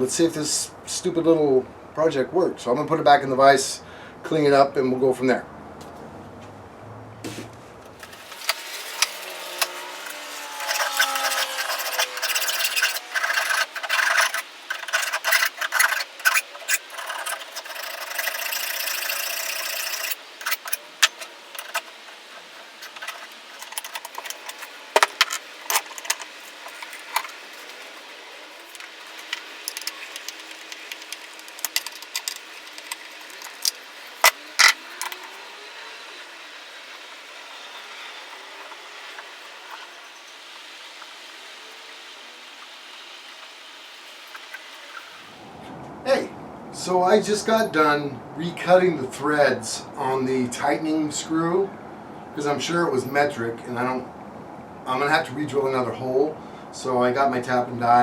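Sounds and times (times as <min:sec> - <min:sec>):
hand file scraping metal: 0:08.0 - 0:40.4
metal part knocking and clanking: 0:12.2 - 0:27.4.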